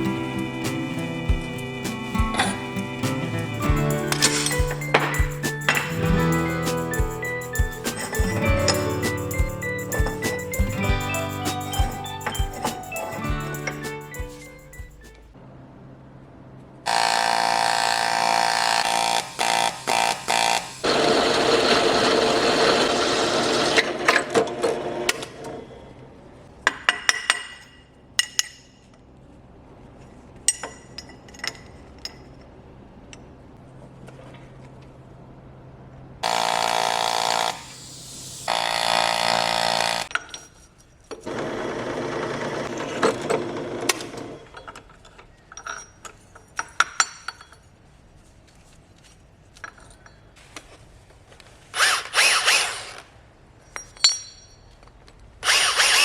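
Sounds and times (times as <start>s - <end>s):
power tools whining: 55.4s - 56.0s.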